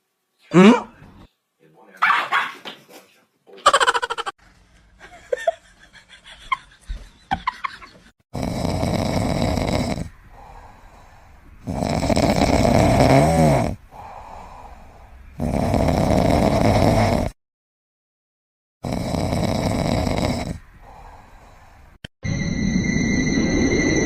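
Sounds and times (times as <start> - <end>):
pet snoring: 8.4 - 11.0, 11.6 - 17.4, 18.8 - 21.0.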